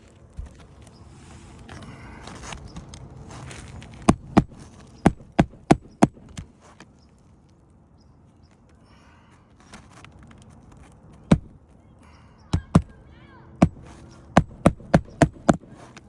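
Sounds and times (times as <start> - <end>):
hammer striking roof shingles: 3.9 - 6.5, 11.3 - 11.6, 12.6 - 13.0, 13.6 - 16.0.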